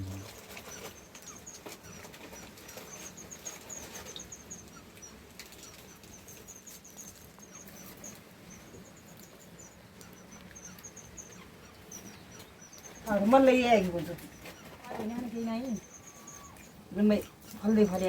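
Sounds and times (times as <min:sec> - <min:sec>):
small bird chirping: 0:00.0 - 0:18.0.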